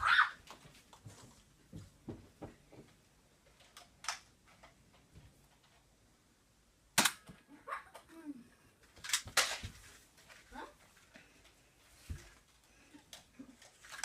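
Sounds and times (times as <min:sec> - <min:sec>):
loud sharp crack: 0:07.0 - 0:07.3.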